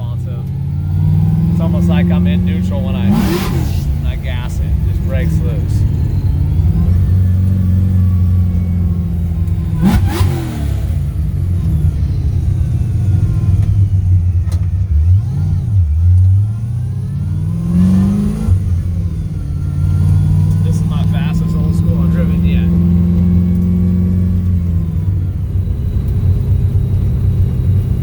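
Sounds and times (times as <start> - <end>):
car engine revving hard: 0.0 - 28.0
engine crack: 0.0 - 28.0.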